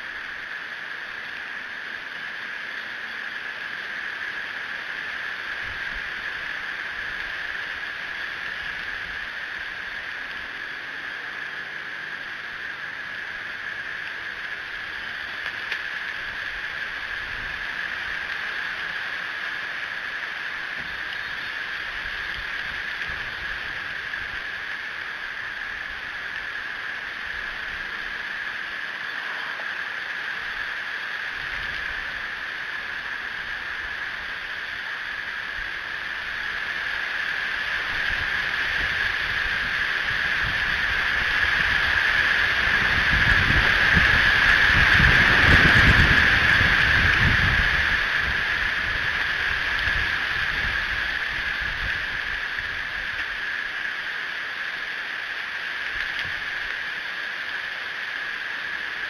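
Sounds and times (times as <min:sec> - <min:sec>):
steady hiss: 0:00.0 - 0:59.0
strong wind buffeting microphone: 0:37.4 - 0:53.2.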